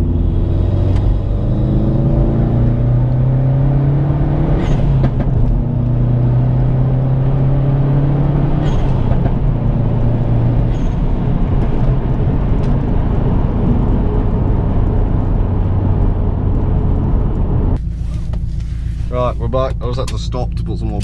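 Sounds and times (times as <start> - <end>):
car engine running at cruise: 0.0 - 21.0
road noise: 0.0 - 21.0.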